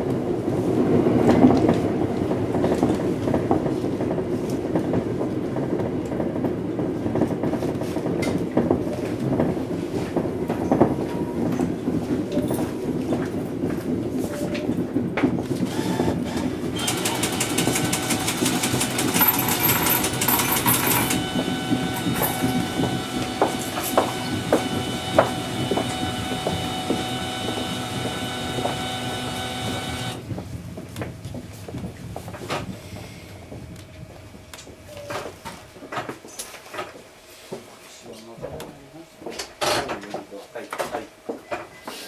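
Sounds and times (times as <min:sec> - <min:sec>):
rail and wheel clatter: 0:00.0 - 0:42.0
steady high whine: 0:17.0 - 0:30.5.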